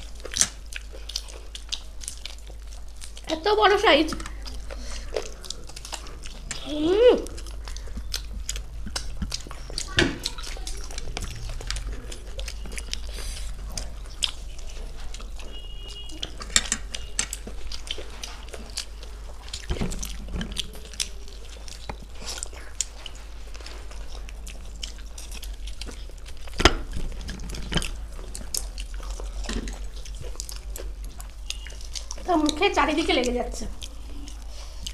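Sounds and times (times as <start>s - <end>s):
steady low hum: 0.0s - 34.9s
wet chewing and lip smacking: 0.0s - 34.9s.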